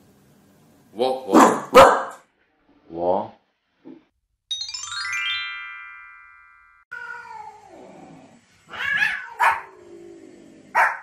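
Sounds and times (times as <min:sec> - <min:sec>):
dog barking: 0:01.3 - 0:02.2, 0:09.0 - 0:09.7, 0:10.7 - 0:11.0
bright electronic chime: 0:04.5 - 0:06.9
cat meowing: 0:06.9 - 0:07.8, 0:08.7 - 0:09.7.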